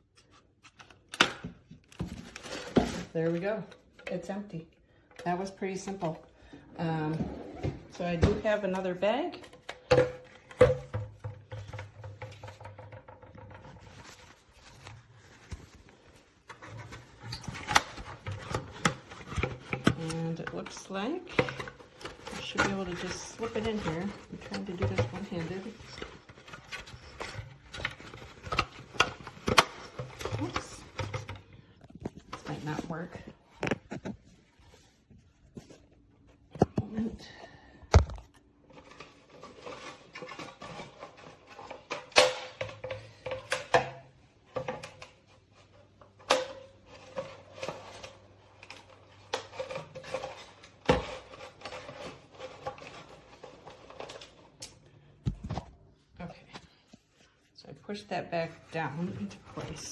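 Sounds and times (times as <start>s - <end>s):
vacuum bag rustling: 14.3s - 34.2s.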